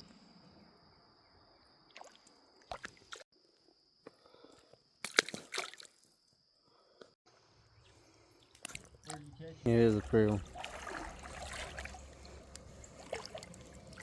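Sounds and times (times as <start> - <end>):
wet splashes and squelches: 1.9 - 3.2, 5.0 - 6.2, 8.3 - 14.0.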